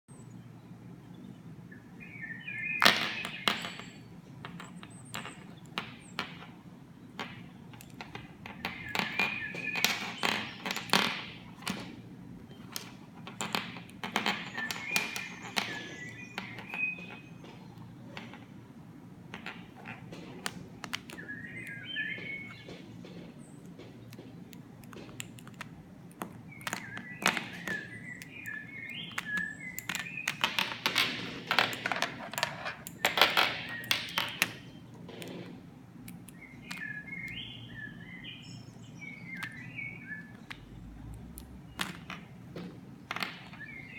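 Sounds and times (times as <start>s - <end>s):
small bird chirping: 0.1s - 6.2s, 7.0s - 13.0s, 14.3s - 18.6s, 19.7s - 25.4s, 26.0s - 31.8s, 32.6s - 35.5s, 36.1s - 40.9s, 43.3s - 43.9s
sharp taps and clicks: 19.3s - 37.5s, 39.2s - 43.9s.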